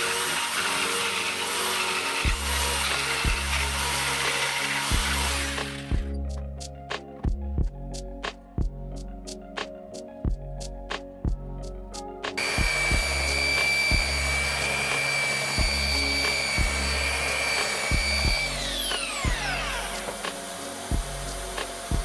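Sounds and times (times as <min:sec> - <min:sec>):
power tool whining: 0:00.0 - 0:06.2, 0:12.4 - 0:22.0
background music with steady beat: 0:00.0 - 0:22.0.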